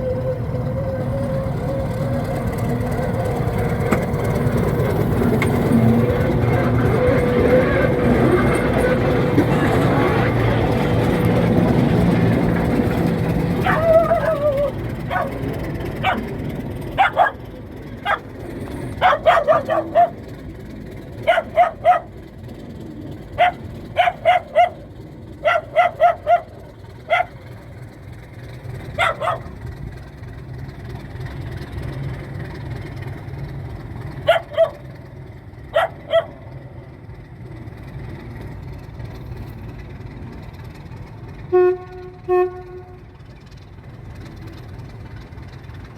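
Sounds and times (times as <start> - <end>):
diesel locomotive rumbling: 0.0 - 45.9
dog barking: 13.6 - 16.3, 17.0 - 17.4, 18.0 - 18.3, 19.0 - 20.2, 21.2 - 22.1, 23.4 - 24.8, 25.4 - 27.4, 29.0 - 29.6, 34.2 - 34.9, 35.7 - 36.4.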